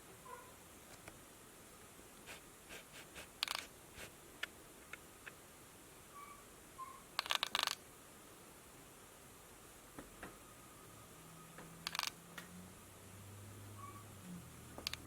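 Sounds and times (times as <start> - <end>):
small clicks and scratches: 3.0 - 5.4, 7.2 - 7.8, 11.6 - 12.5, 14.8 - 15.0
faint short squeaks: 6.1 - 7.1, 13.8 - 14.1.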